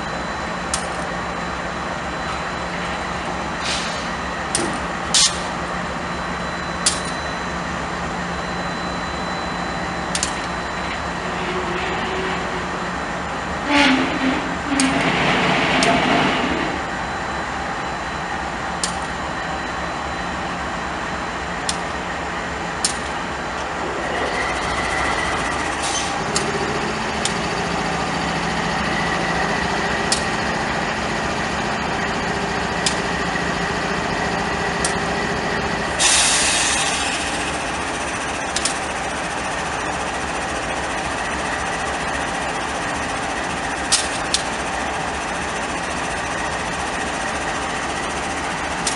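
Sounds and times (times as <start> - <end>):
sharp clicks of train wheels: 0.6 - 1.1, 6.8 - 7.2, 10.1 - 10.6, 14.7 - 16.8, 18.7 - 19.2, 21.6 - 22.1, 22.8 - 28.1, 29.6 - 30.7, 32.4 - 48.9
train rumbling by: 10.7 - 43.9.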